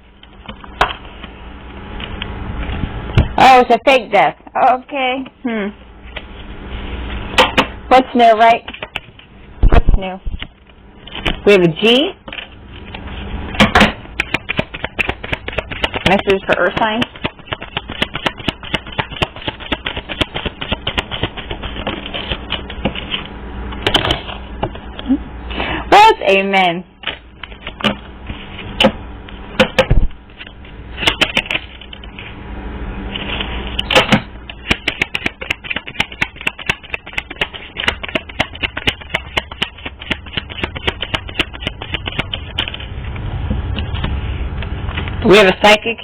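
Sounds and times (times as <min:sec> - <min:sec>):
cards being shuffled: 0:14.2 - 0:24.4, 0:33.2 - 0:42.9.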